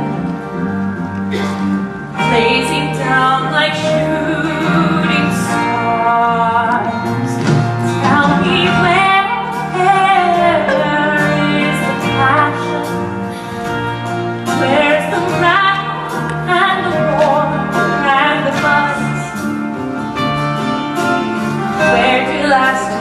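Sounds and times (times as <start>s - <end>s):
instrumental accompaniment: 0.0s - 23.0s
woman singing slow song: 2.2s - 13.2s, 14.5s - 19.5s, 21.8s - 23.0s.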